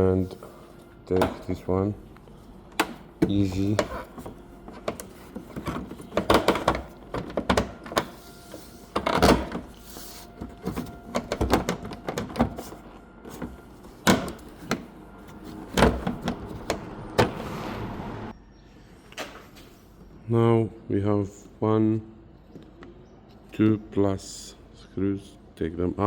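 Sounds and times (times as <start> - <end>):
knocks and clicks of tools: 1.1 - 1.6, 2.7 - 8.2.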